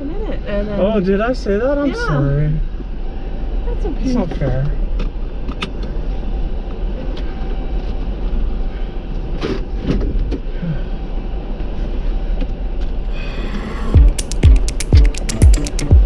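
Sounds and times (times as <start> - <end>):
electronic music with thumping beat: 13.1 - 16.0.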